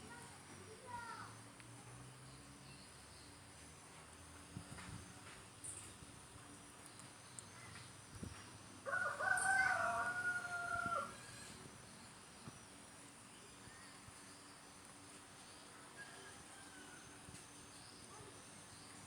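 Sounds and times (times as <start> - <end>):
rooster crowing: 8.9 - 11.6, 16.0 - 17.2.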